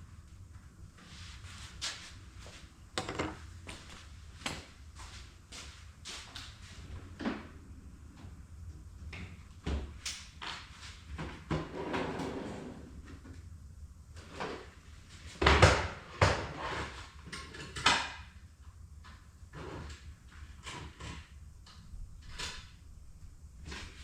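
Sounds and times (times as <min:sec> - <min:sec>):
tools and sheet metal clunking: 0:03.0 - 0:03.4.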